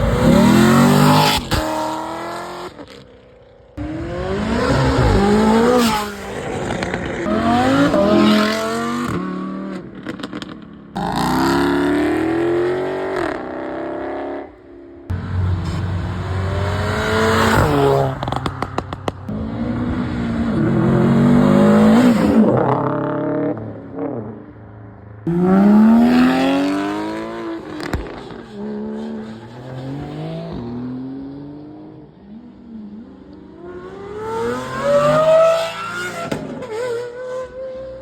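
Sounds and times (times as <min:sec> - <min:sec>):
car engines revving and accelerating: 0:00.0 - 0:38.0
exhaust crackles and pops: 0:18.1 - 0:19.3, 0:27.7 - 0:28.5.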